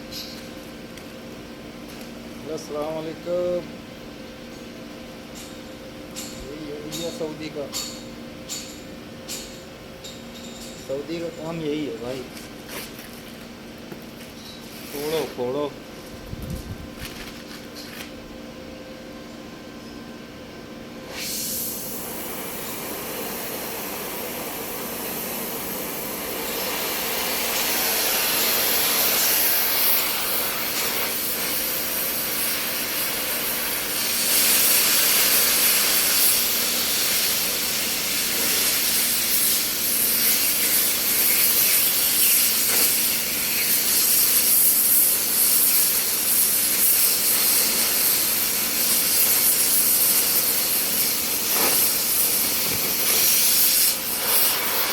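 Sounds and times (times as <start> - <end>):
welding sizzle: 14.2 - 15.7, 21.1 - 54.9.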